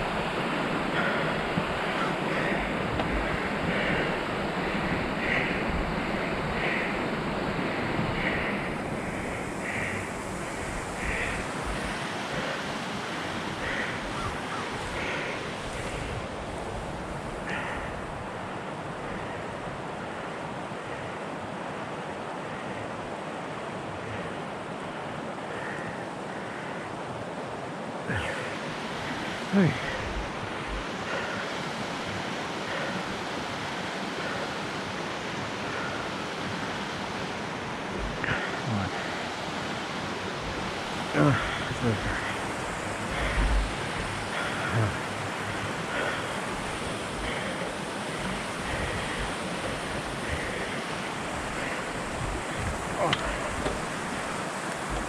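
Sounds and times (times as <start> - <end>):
soft repeating hiss: 28.1 - 55.0
wind buffeting microphone: 37.6 - 55.0
bike tyres rolling on snow: 39.5 - 55.0.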